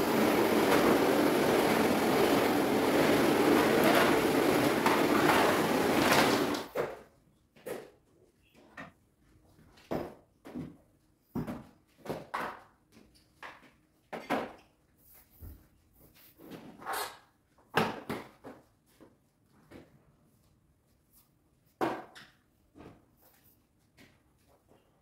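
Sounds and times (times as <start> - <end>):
mop swishing over floor: 0.0 - 6.8.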